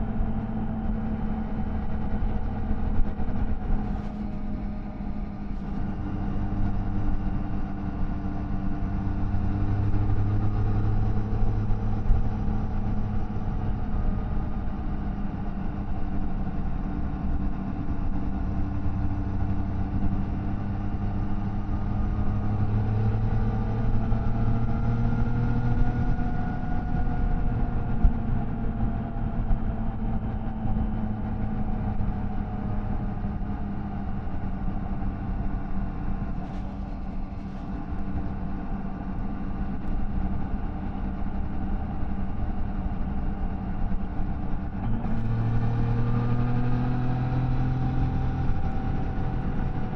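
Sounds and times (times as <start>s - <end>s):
motorcycle engine cruising: 20.1s - 49.9s.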